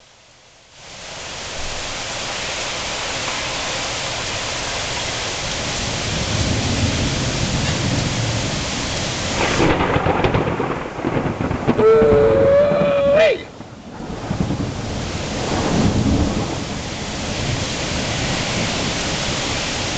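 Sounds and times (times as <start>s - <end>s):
heavy rain hiss: 0.0s - 19.9s
rolling thunder: 5.6s - 19.9s.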